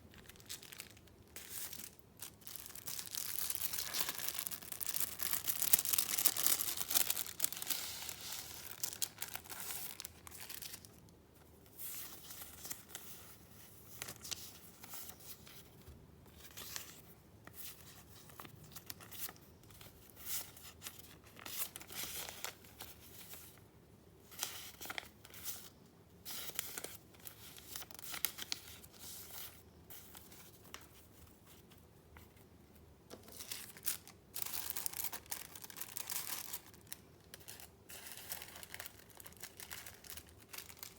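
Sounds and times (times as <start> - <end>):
paper rustling and crinkling: 0.1 - 11.0, 33.1 - 40.9.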